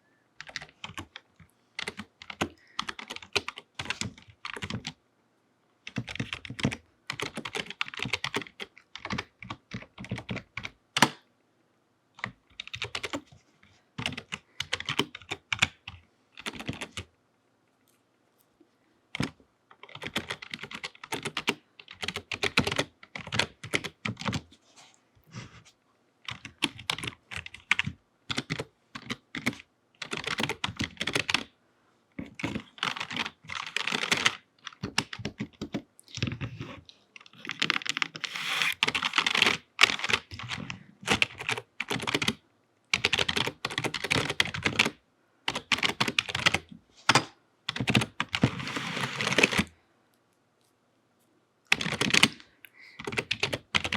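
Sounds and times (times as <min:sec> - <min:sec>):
typing on computer keyboard: 0:00.4 - 0:01.2, 0:01.8 - 0:05.0, 0:05.9 - 0:11.2, 0:12.2 - 0:13.3, 0:14.0 - 0:17.1, 0:19.2 - 0:24.4, 0:26.3 - 0:31.5, 0:32.3 - 0:36.4, 0:38.8 - 0:49.7, 0:51.7 - 0:52.4, 0:53.0 - 0:53.9.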